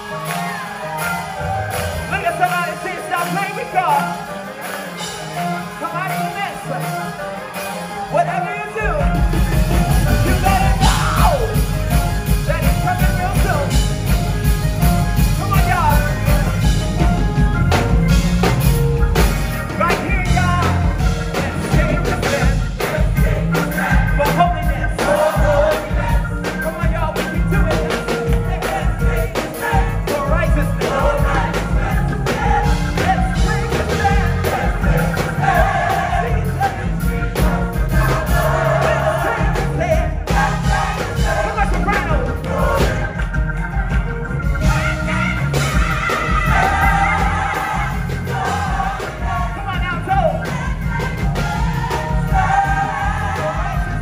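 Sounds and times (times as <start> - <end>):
band with drums bass keyboard: 0.0 - 54.0
gospel choir singing: 0.0 - 54.0.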